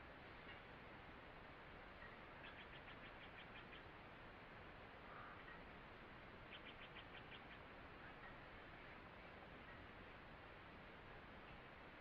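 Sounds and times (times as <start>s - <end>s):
soft steady hiss: 0.0s - 12.0s
small bird chirping: 2.0s - 3.9s, 6.5s - 8.4s.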